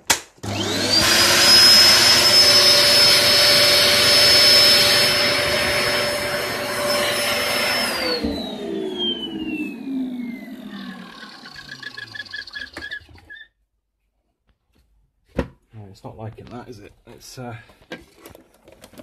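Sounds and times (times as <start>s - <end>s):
vacuum cleaner motor whine: 0.4s - 13.0s.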